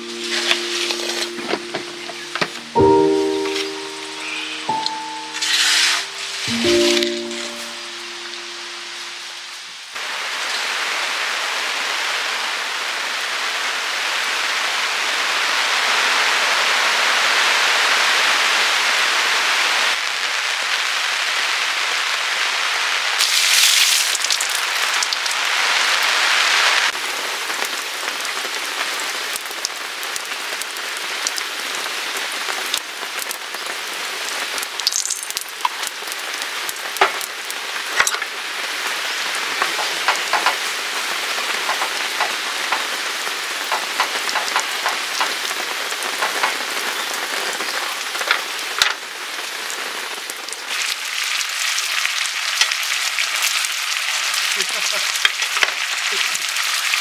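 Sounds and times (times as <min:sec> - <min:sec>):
heavy rain hissing: 0:00.0 - 0:51.4
raindrops tapping: 0:39.5 - 0:47.6.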